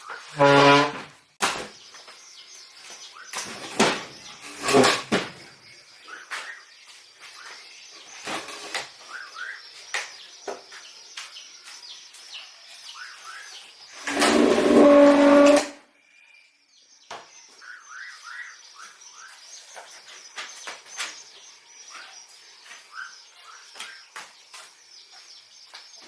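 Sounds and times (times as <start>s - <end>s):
small birds chirping: 1.4s - 14.1s, 15.9s - 26.0s.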